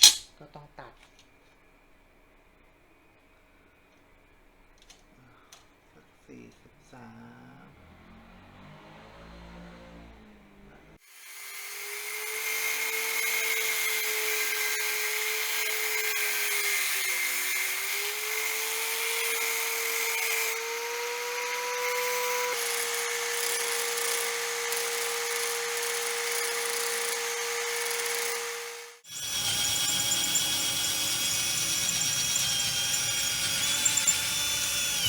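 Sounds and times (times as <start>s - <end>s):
power tool whining on metal: 11.0s - 35.0s.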